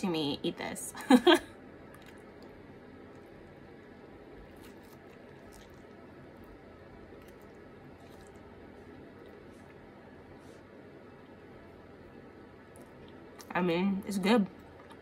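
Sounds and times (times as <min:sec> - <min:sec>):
faint chewing: 0:01.9 - 0:03.4, 0:04.4 - 0:11.4.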